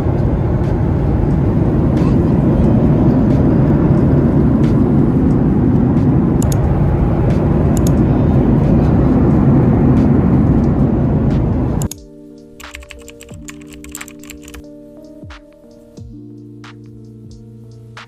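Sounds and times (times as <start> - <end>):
airliner cabin engine roar: 0.0 - 11.9.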